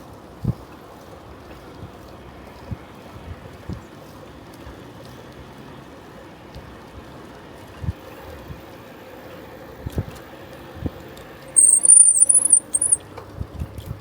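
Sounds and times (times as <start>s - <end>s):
bicycle ride rumble: 0.0s - 14.0s
bicycle brakes squealing: 11.6s - 13.0s.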